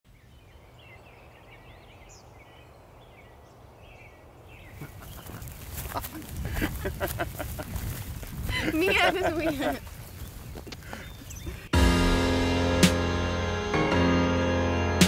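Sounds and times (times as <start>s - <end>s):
small birds chirping: 0.1s - 11.8s.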